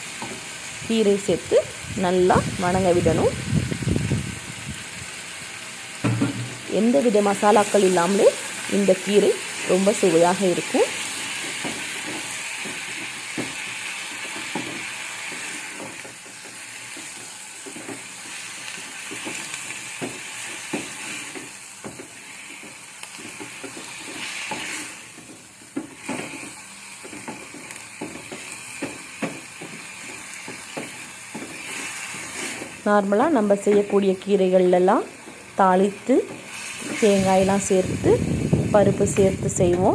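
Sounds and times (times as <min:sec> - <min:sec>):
greens sizzling in oil: 0:00.0 - 0:39.9
spoon scraping pan: 0:10.8 - 0:32.8.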